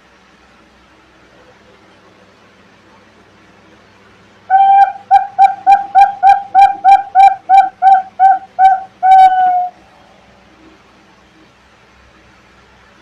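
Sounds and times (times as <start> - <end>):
dove cooing: 4.5 - 9.8.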